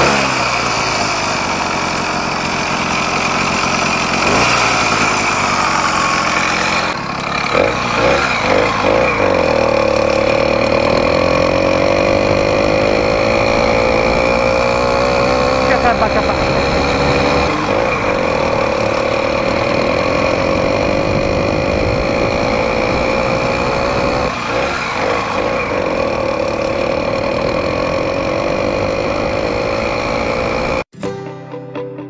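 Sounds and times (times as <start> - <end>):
small gasoline engine running: 0.0 - 30.9.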